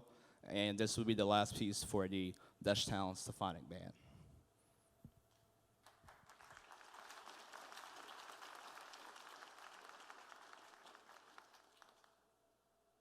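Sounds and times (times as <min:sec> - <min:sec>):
faint audience applause: 0:05.8 - 0:12.2.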